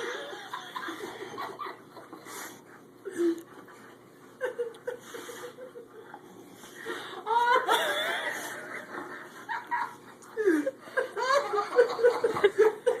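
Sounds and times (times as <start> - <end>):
person laughing: 6.9 - 13.0.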